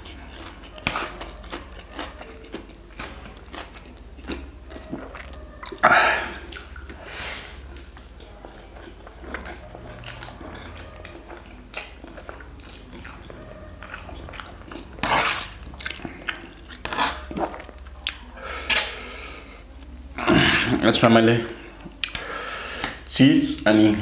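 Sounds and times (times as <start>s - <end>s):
person chewing and slurping noodles: 0.0s - 20.8s
wet mouth clicks: 21.9s - 23.0s.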